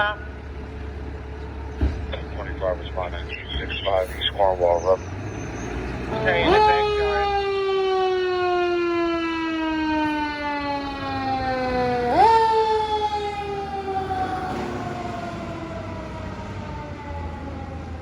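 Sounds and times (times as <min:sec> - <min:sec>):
mechanical siren wailing: 0:04.9 - 0:18.0.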